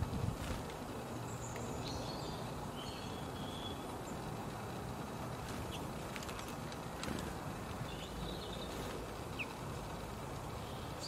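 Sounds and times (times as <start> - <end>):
low background rumble: 0.0 - 11.0
high bird chirps: 1.2 - 4.2, 7.8 - 9.6.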